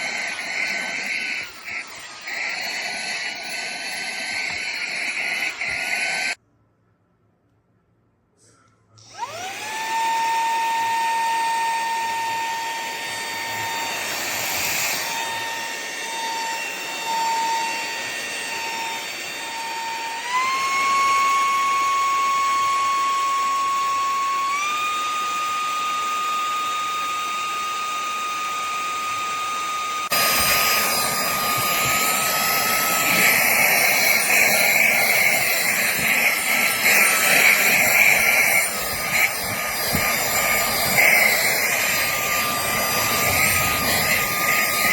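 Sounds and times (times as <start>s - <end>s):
handheld vacuum motor whine: 0.0s - 6.4s, 9.0s - 44.9s.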